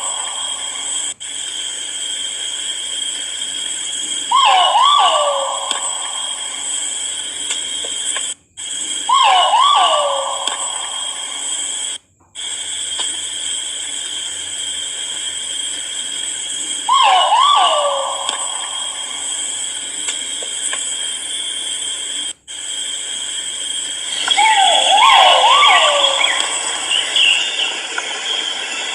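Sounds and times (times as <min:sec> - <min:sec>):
pheasant calling: 0:00.0 - 0:01.0, 0:04.3 - 0:06.7, 0:09.1 - 0:11.5, 0:16.9 - 0:19.3, 0:24.0 - 0:28.6
high-pitched background hiss: 0:00.0 - 0:28.9.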